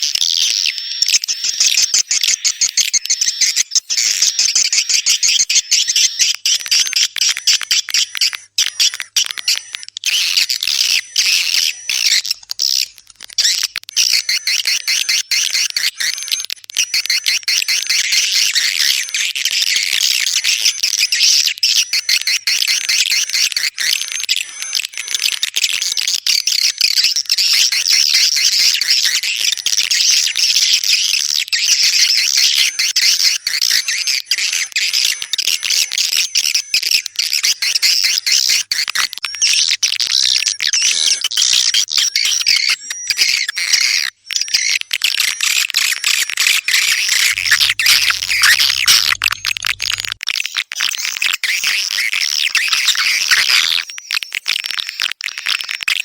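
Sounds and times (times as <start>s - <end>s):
swiftlets twittering and clicking: 0.1s - 55.8s.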